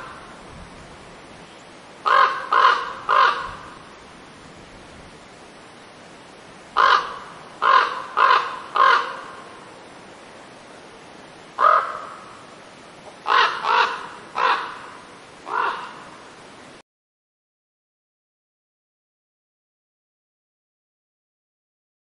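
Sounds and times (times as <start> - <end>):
faint hiss: 0.0 - 16.8
harsh bird calls: 6.8 - 9.4, 13.2 - 16.0.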